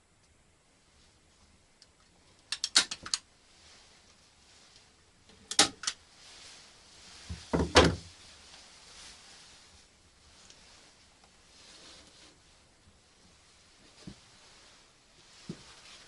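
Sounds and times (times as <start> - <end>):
sharp clicks and knocks: 1.8 - 3.2, 5.3 - 6.0.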